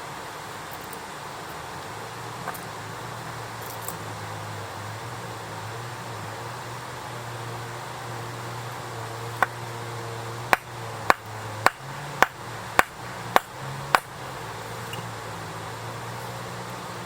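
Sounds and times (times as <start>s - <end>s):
steady low hum: 0.0s - 17.0s
sharp knocks: 10.5s - 14.1s.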